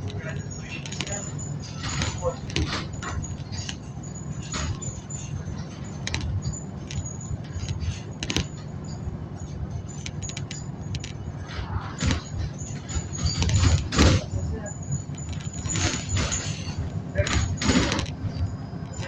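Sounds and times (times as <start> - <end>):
bus engine and road rumble: 0.0 - 19.0
small rattles and clinks: 0.0 - 19.0.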